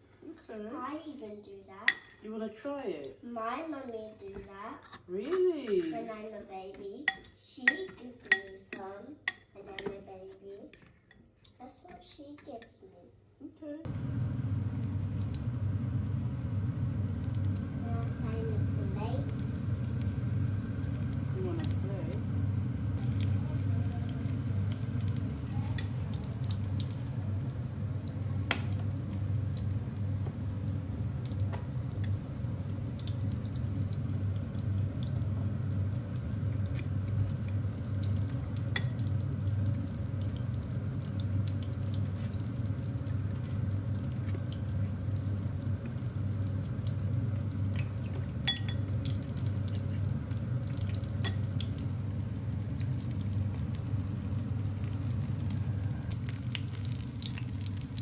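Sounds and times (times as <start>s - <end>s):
apple slices sizzling in oil: 13.9s - 58.0s
fork clinking against ceramic bowl: 38.7s - 39.0s, 48.4s - 48.9s, 51.2s - 51.5s.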